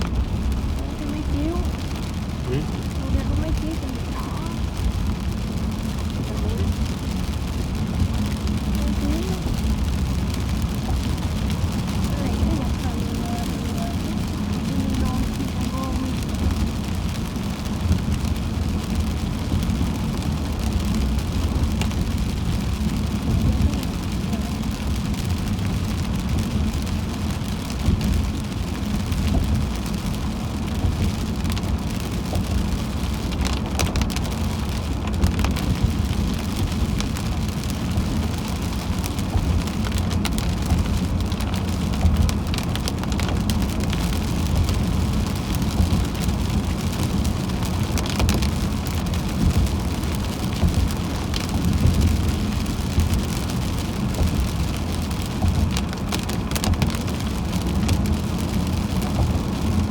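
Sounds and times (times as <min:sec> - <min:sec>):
car driving on wet road: 0:00.0 - 0:59.9
heavy rain on a car: 0:00.0 - 0:59.9
raindrop taps: 0:00.0 - 0:59.9.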